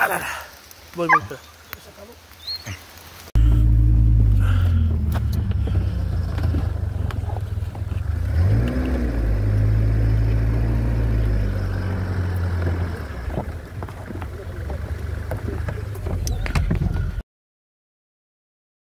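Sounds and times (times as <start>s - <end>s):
car engine running: 3.4s - 17.2s.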